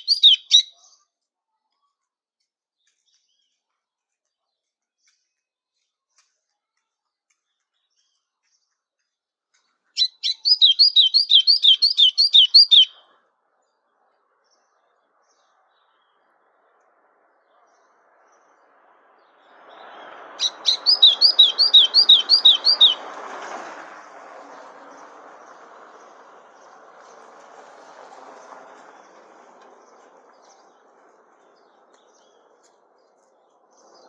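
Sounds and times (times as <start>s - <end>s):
songbird whistled phrases: 0.0s - 0.8s, 10.0s - 13.0s, 20.4s - 23.0s.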